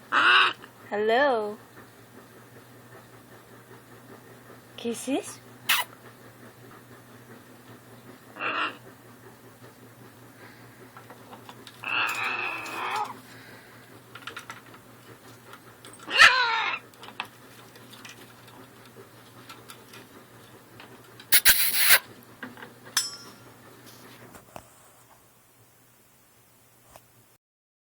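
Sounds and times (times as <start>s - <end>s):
parrot screeching: 5.7s - 5.9s, 21.3s - 22.0s
parrot squawking: 5.7s - 5.9s, 21.3s - 22.0s
high chirp: 21.4s - 22.0s.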